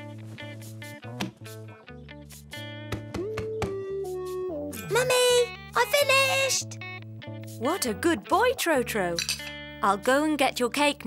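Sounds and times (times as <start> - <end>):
plucked guitar cartoon music: 0.0 - 11.0.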